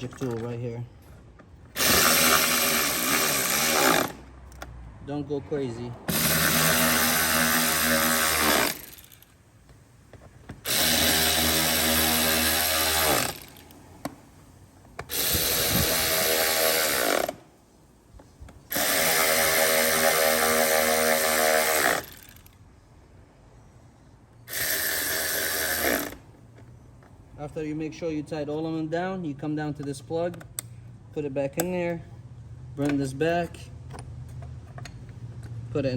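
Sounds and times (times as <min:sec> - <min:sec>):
electric screwdriver running: 0:01.8 - 0:04.2, 0:06.1 - 0:09.2, 0:10.7 - 0:13.7, 0:15.1 - 0:17.4, 0:18.7 - 0:22.5, 0:24.5 - 0:26.2.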